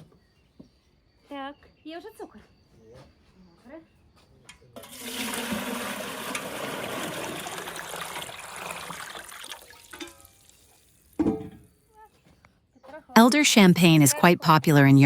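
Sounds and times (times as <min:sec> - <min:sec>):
water pouring into container: 0:04.8 - 0:10.9.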